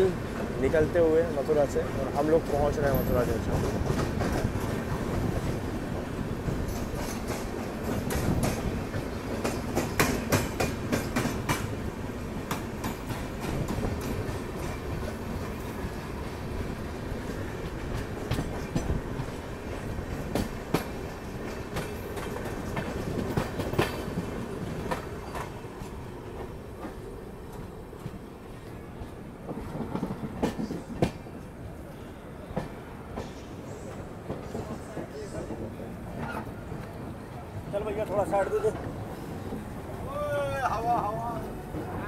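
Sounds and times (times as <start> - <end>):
wheels clacking over rail joints: 0.0 - 16.0, 17.2 - 28.2, 29.4 - 31.3
train rumble: 0.0 - 42.0.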